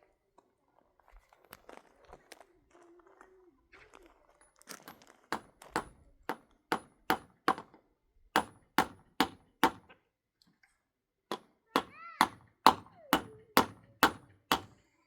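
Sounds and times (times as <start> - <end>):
hammer driving nails into wood: 5.3 - 7.8, 8.4 - 10.0, 11.3 - 14.8.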